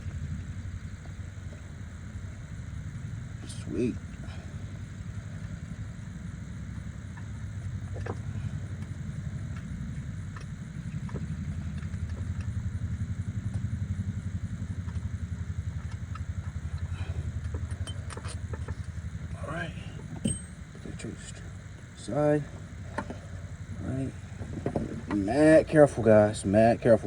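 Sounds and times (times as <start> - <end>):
pulsing low rumble: 0.0 - 27.0
light clinks: 17.4 - 18.9, 20.0 - 21.0.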